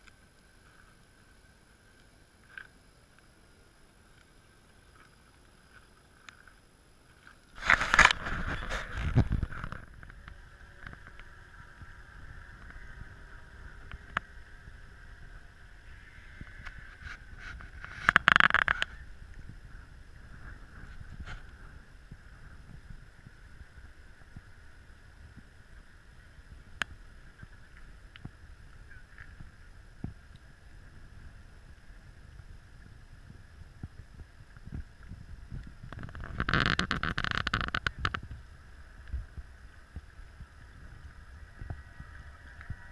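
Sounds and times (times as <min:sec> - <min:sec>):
model boat motor whine: 0:08.0 - 0:28.0.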